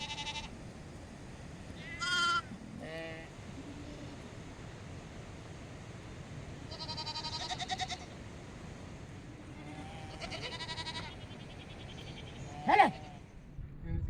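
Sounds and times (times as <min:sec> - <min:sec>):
livestock bleating: 0:00.0 - 0:00.6, 0:01.8 - 0:04.3, 0:06.7 - 0:08.2, 0:09.4 - 0:13.3
steady hiss: 0:00.0 - 0:13.4.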